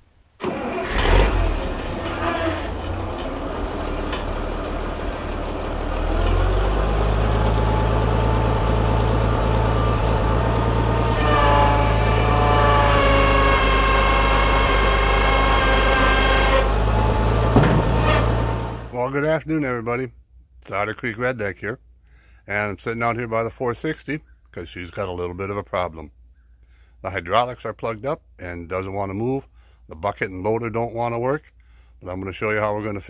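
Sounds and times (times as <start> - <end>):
high engine whine: 0.4 - 19.0
tractor engine drone: 0.4 - 19.6.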